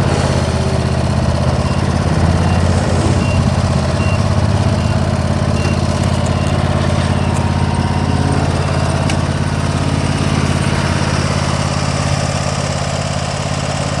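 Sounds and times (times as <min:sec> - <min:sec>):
mower engine running: 0:00.0 - 0:14.0.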